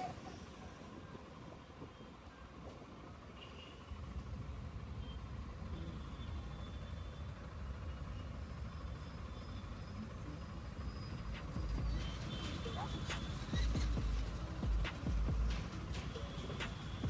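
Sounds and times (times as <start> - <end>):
road noise: 0.0 - 17.0
motorcycle engine running: 11.6 - 17.0.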